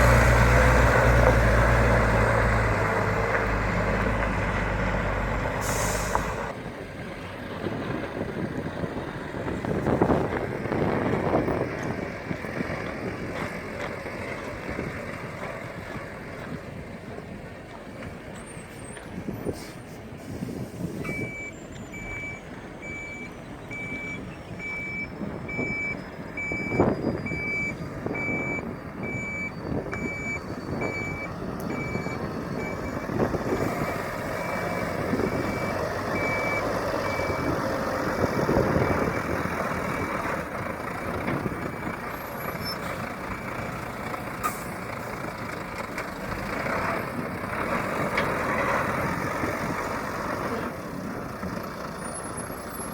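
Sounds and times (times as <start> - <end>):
diesel truck engine running: 0.0 - 52.9
reversing alarm beeping: 21.0 - 37.6.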